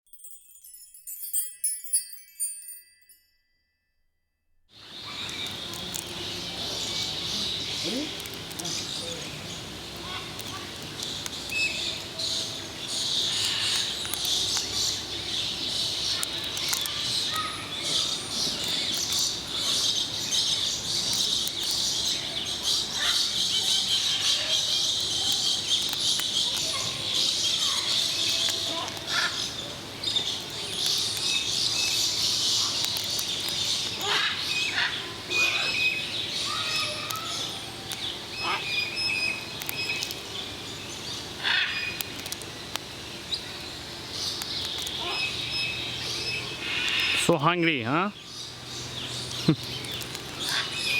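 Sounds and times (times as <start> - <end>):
birds chirping: 4.7 - 50.9
small clicks: 9.9 - 15.0, 15.8 - 17.2, 24.8 - 29.4, 30.0 - 34.1, 39.1 - 40.3, 41.9 - 42.9, 44.2 - 45.0, 49.4 - 50.6.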